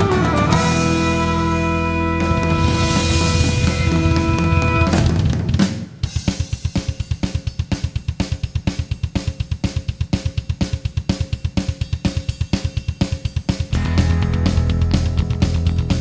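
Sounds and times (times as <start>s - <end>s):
drum kit playing fast beat: 0.0s - 16.0s.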